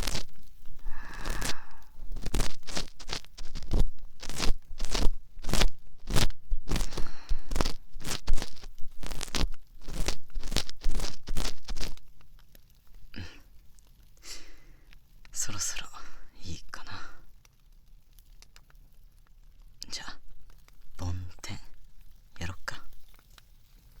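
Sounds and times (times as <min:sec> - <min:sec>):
earpick scraping in ear: 0:00.0 - 0:12.1.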